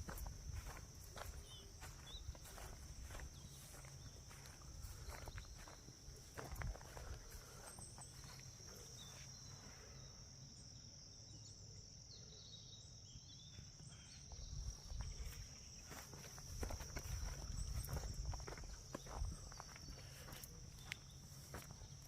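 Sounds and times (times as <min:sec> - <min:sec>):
footsteps on a path: 0:00.0 - 0:09.5, 0:14.3 - 0:22.0
insects droning: 0:00.0 - 0:22.0.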